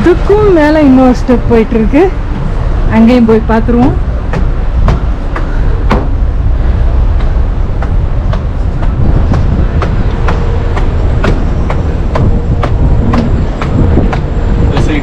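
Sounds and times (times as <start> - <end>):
wind buffeting microphone: 0.0 - 15.0
footsteps clicking: 7.1 - 15.0.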